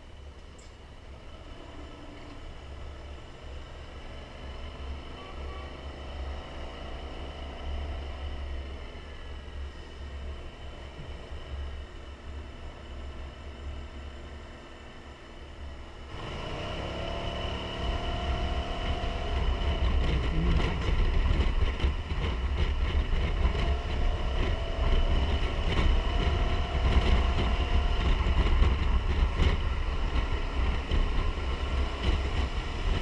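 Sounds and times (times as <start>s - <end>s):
steady low rumble: 17.2s - 33.0s
wind buffeting microphone: 17.6s - 33.0s.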